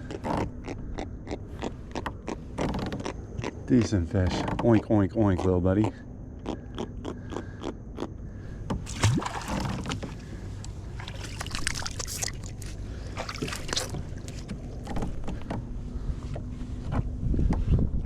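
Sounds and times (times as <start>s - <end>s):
low background hum: 0.0s - 18.0s
water splashing: 8.8s - 14.9s
knocks and scrapes on kayak: 13.5s - 17.9s.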